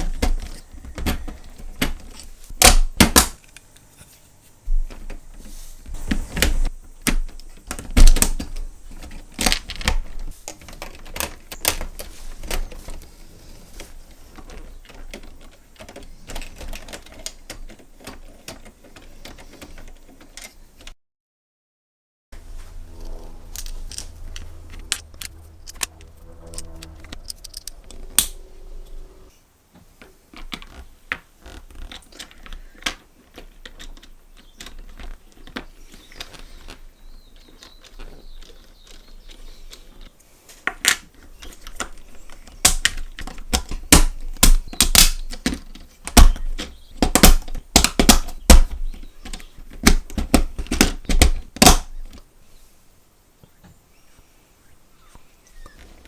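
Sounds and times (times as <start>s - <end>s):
plastic toy parts clicking: 6.4s - 20.9s, 23.5s - 29.0s, 30.3s - 52.2s
low hum: 22.4s - 29.3s.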